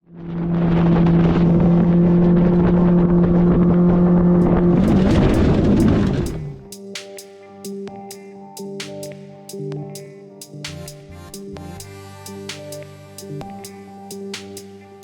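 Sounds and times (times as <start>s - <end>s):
motorboat engine running: 0.0s - 6.7s
rush of wind and water: 0.3s - 6.6s
music: 4.4s - 15.0s.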